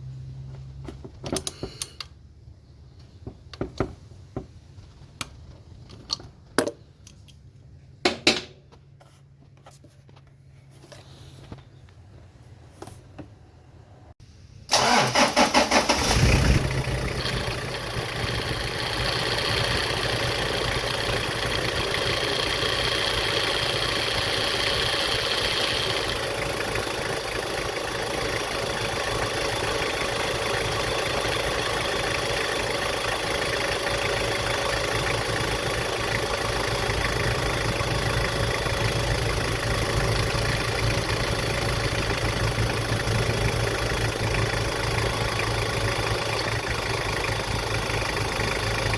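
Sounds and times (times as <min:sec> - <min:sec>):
car engine starting and idling: 0:14.3 - 0:48.9.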